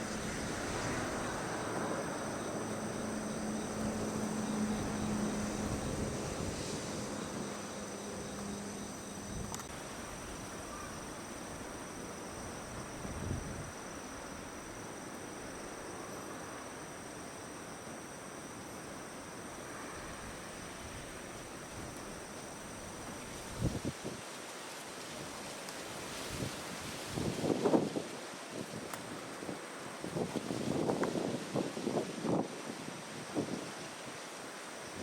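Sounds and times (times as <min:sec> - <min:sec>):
click: 0:09.4 - 0:09.7, 0:28.9 - 0:29.1.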